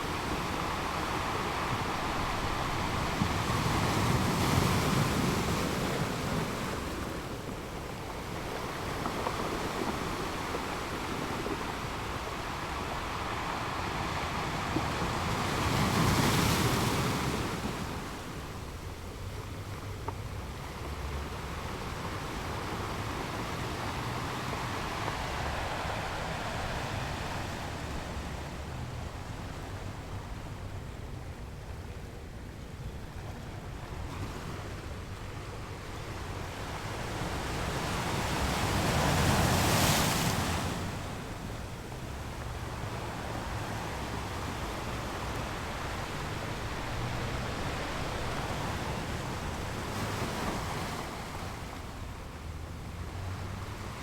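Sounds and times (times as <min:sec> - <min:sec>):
ocean waves breaking on shore: 0:00.0 - 0:54.0.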